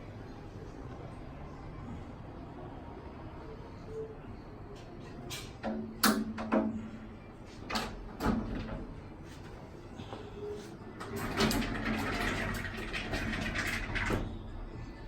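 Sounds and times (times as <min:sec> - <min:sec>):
panels rolling along track: 0:10.4 - 0:15.0.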